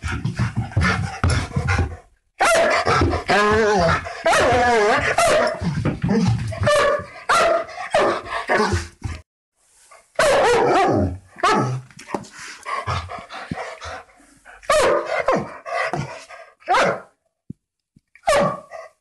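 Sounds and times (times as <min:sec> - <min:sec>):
dog barking aggressively: 0:01.8 - 0:05.7, 0:06.6 - 0:08.9, 0:10.2 - 0:11.8, 0:14.7 - 0:17.1, 0:18.2 - 0:18.8.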